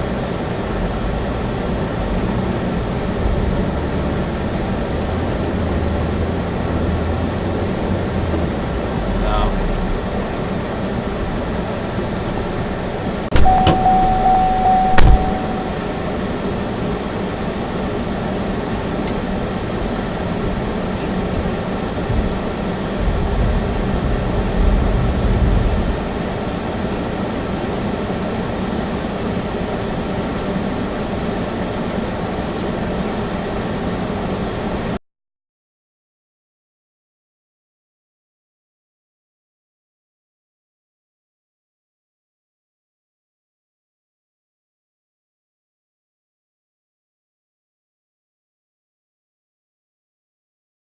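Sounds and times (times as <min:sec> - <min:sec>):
car road and engine noise: 0:00.0 - 0:35.0
steady beep tone: 0:13.3 - 0:16.2
sharp knock: 0:14.8 - 0:15.5.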